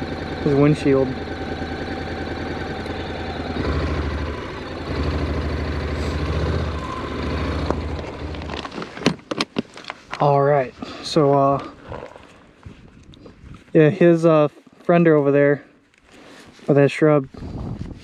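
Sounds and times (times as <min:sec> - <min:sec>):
motorcycle engine rumbling: 0:00.0 - 0:13.6.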